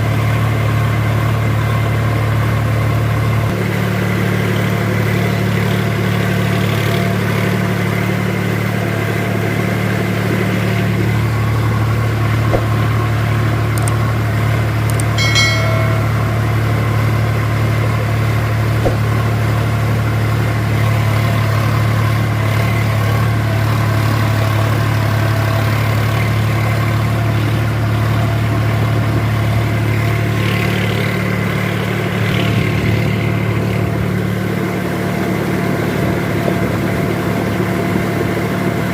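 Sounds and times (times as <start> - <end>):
tractor diesel engine running: 0.0 - 38.9
brief high-pitched tone: 15.2 - 17.2.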